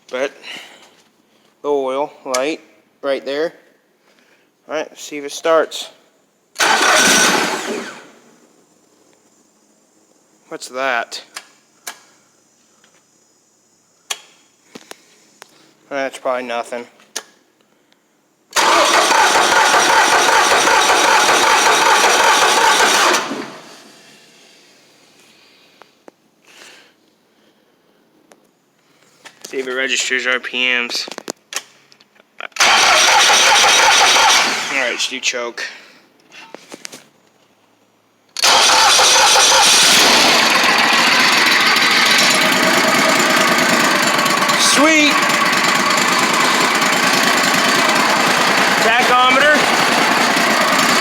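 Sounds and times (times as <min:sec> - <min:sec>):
small gasoline engine cranking: 0:06.6 - 0:08.2, 0:18.6 - 0:23.8, 0:32.6 - 0:35.1, 0:38.4 - 0:51.0.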